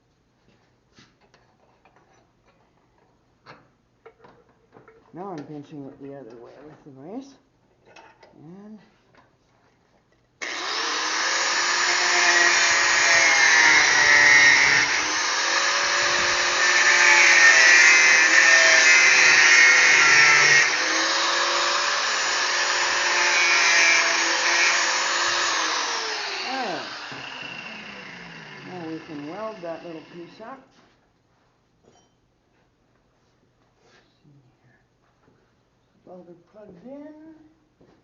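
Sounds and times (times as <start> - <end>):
power tool motor running: 10.4 - 30.3.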